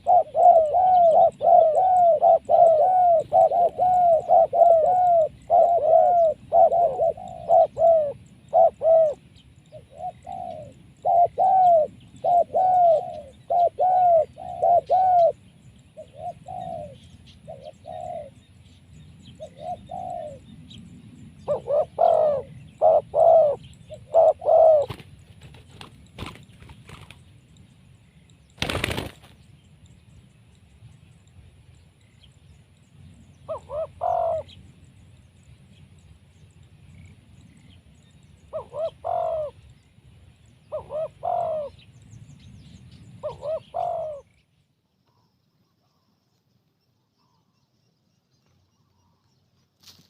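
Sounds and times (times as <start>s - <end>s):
dove cooing: 0.0s - 15.4s, 16.0s - 18.4s, 19.4s - 20.5s, 21.4s - 27.1s, 33.4s - 34.6s, 38.5s - 39.6s, 40.7s - 41.8s, 43.2s - 44.3s.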